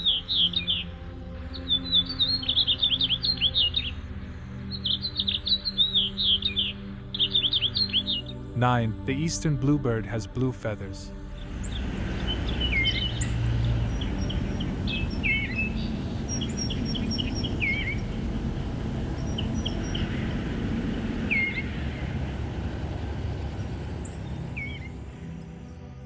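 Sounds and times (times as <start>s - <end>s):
bird singing warbled phrases: 0.0s - 10.3s, 11.2s - 25.9s
low background rumble: 11.1s - 26.0s.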